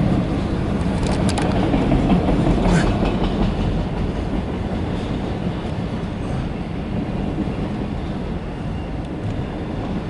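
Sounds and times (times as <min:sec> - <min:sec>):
train wheels on rail: 0:00.0 - 0:10.0.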